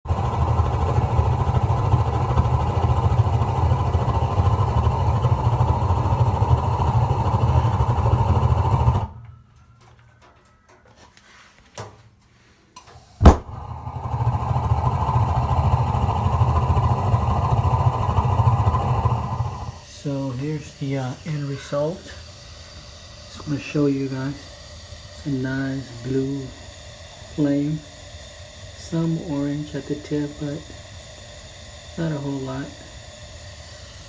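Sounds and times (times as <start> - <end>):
gas burner rumbling: 0.0 - 10.8, 12.8 - 34.0
burner igniting with sharp pop: 13.2 - 19.9.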